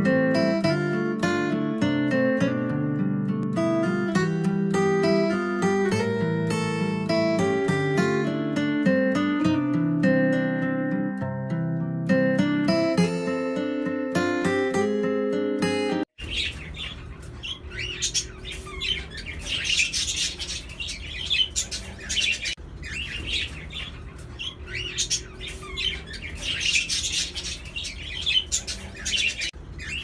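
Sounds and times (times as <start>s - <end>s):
small birds chirping: 16.2s - 30.0s.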